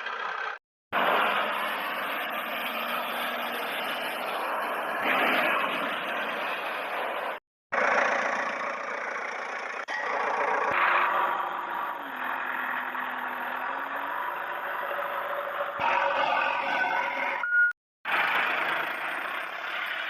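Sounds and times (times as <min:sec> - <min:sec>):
toy vehicles mechanical noise: 0:00.0 - 0:17.4, 0:18.1 - 0:20.0.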